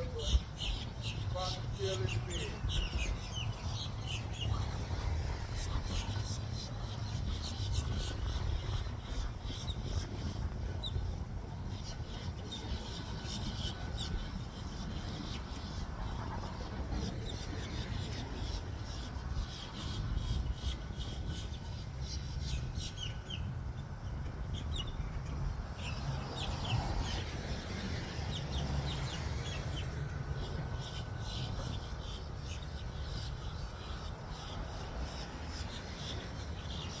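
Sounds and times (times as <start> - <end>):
birds chirping: 0.0 - 15.8
steady low rumble: 0.0 - 37.0.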